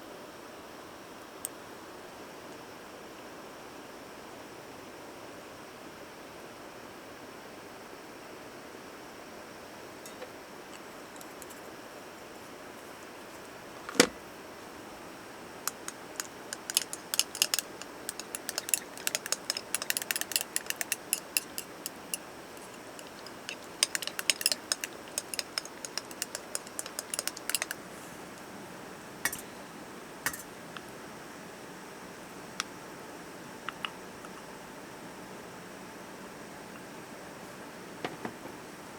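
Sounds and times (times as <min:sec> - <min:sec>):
small hard objects clicking: 0:15.7 - 0:27.8.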